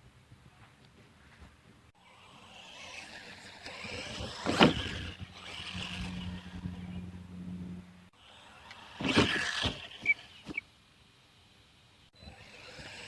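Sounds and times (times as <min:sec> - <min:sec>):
low hum: 0:02.0 - 0:08.1
rc truck drivetrain whirring: 0:02.0 - 0:10.6, 0:12.2 - 0:13.0.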